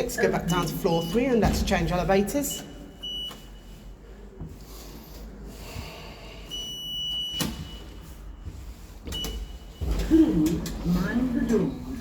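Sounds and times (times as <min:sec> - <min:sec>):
lift electronic beep: 0:00.1 - 0:01.4.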